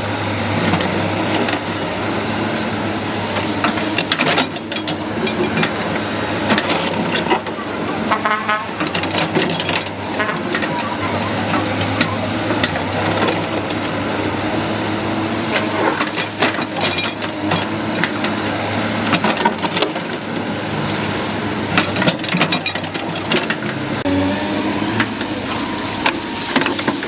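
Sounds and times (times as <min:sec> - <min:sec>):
excavator engine running: 0:00.0 - 0:27.0.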